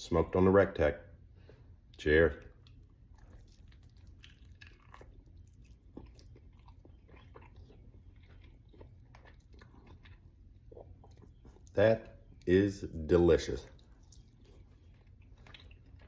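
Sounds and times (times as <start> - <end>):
chewing and biting: 2.4 - 12.5, 13.6 - 16.0.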